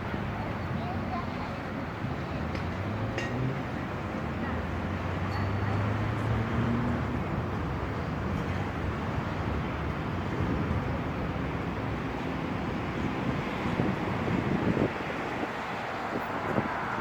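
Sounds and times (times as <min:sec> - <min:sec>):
strong wind blowing: 0:13.1 - 0:17.0.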